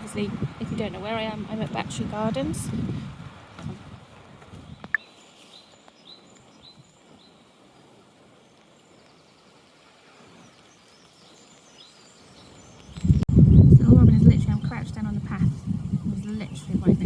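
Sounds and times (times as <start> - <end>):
rain and wind hiss: 0.0 - 17.0
small bird chirping: 8.4 - 17.0.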